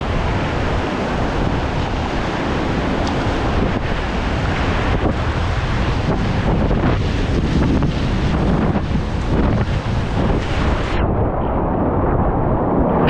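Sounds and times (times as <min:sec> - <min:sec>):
river rapids rushing: 0:00.0 - 0:05.8
wind buffeting microphone: 0:00.0 - 0:13.0.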